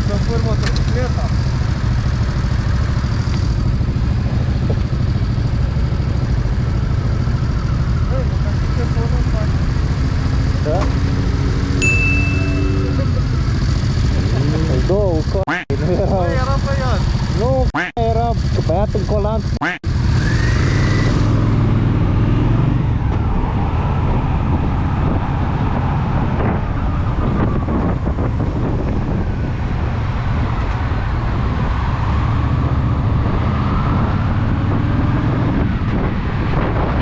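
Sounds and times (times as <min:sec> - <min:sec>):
motorcycle engine running: 0:00.0 - 0:22.5
wind noise on microphone: 0:21.9 - 0:37.0.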